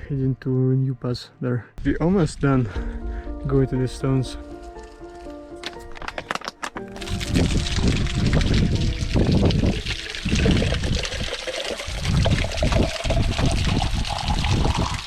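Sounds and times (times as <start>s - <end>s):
water trickling and running: 7.0s - 15.0s.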